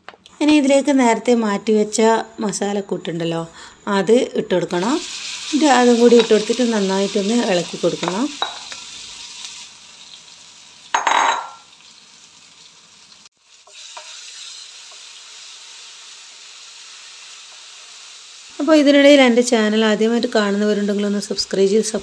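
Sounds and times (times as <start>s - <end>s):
leaves sizzling in hot ghee: 4.7s - 11.0s, 11.6s - 22.0s
paste sizzling while stirred: 4.8s - 11.0s, 11.6s - 18.6s.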